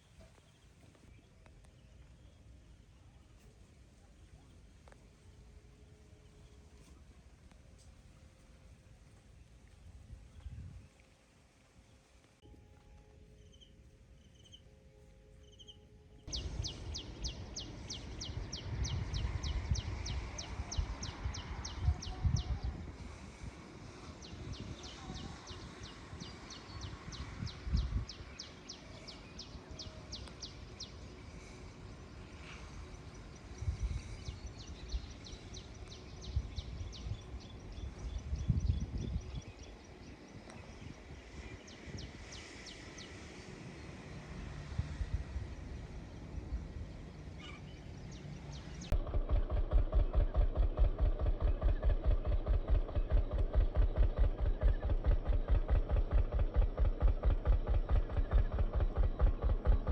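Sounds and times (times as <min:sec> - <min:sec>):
low rumble bursts: 0:16.3 - 0:59.9.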